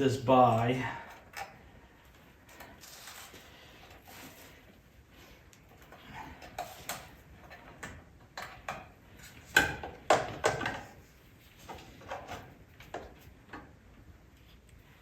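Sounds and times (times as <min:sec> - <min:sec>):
knocks and clunks of parts: 0:05.9 - 0:13.8.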